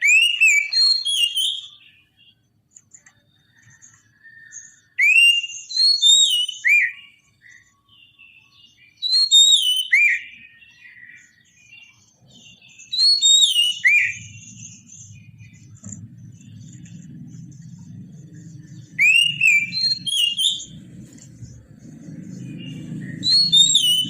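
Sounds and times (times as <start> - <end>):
bird singing whistled notes: 0.0 - 24.0
soft bird twittering: 0.0 - 24.0
low rumble: 14.3 - 24.0.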